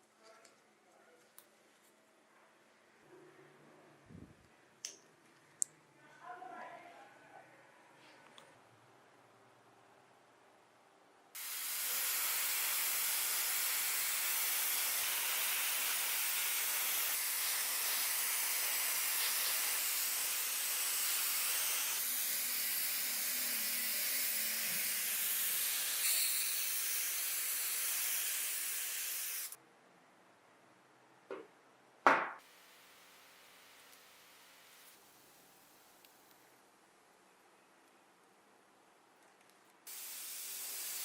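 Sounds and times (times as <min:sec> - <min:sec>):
air spray hissing: 0:11.4 - 0:29.6, 0:39.9 - 0:41.0.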